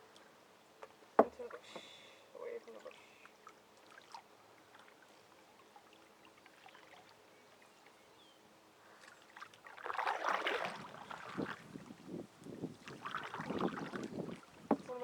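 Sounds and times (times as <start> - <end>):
faint small knocks: 0.8 - 1.9, 14.7 - 14.9
water sounds: 8.9 - 15.0
paddle splashing in water: 9.0 - 11.8, 12.8 - 15.0.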